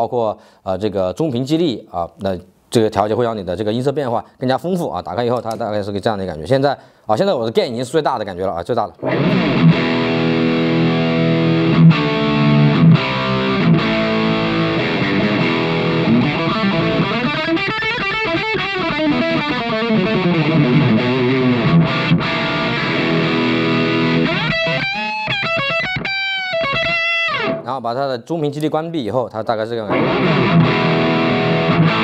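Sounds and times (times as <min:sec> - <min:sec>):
distorted electric guitar: 0:09.0 - 0:27.7, 0:29.9 - 0:32.0.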